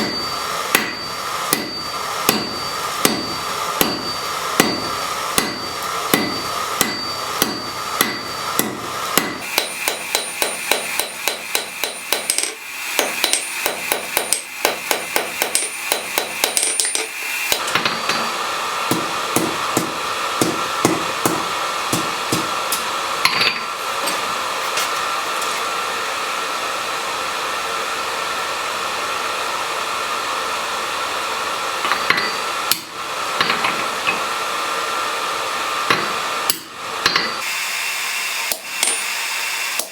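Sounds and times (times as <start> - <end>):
hammer striking steel on anvil: 0.0 - 24.3, 31.8 - 34.4, 35.9 - 37.5, 38.5 - 39.1
steady hum: 0.0 - 25.5.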